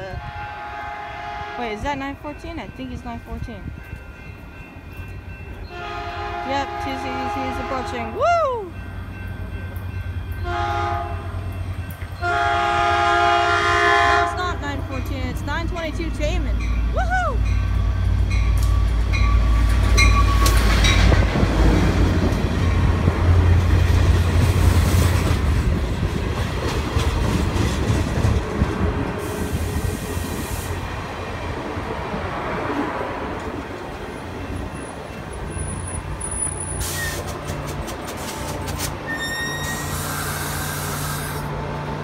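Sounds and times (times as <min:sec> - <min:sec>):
train wheels clicking and squealing: 0:16.6 - 0:21.2, 0:34.3 - 0:41.5.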